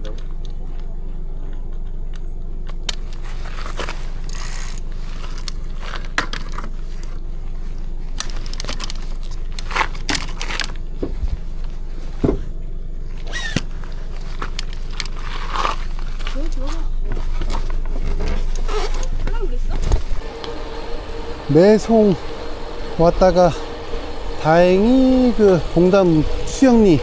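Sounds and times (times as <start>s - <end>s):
metallic clinks and rattles: 8.2s - 10.8s
steady low rumble: 13.8s - 27.0s.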